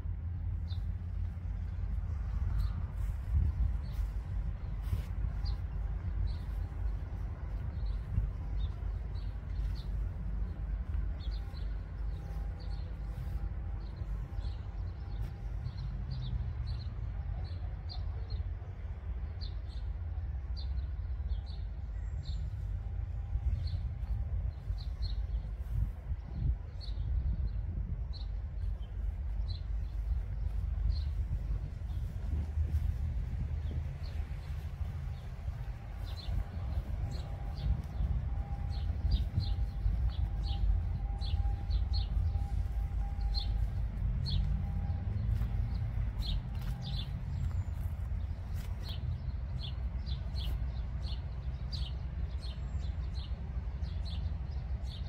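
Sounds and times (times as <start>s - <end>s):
steady low rumble: 0.0s - 55.0s
small birds chirping: 23.6s - 55.0s.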